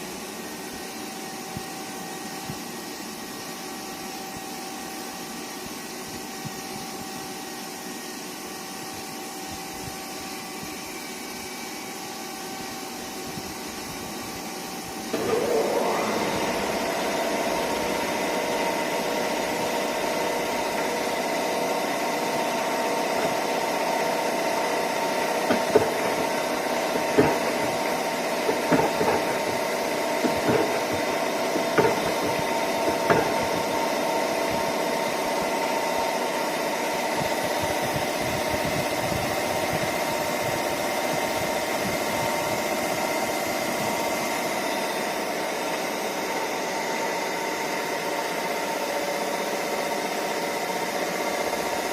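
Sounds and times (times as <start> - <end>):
lathe machine whine: 0.0 - 51.9
sharp clunks and knocks: 25.4 - 33.9.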